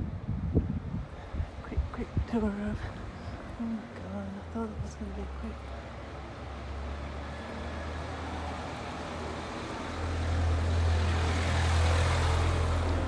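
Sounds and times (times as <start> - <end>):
wind buffeting microphone: 0.0 - 5.4.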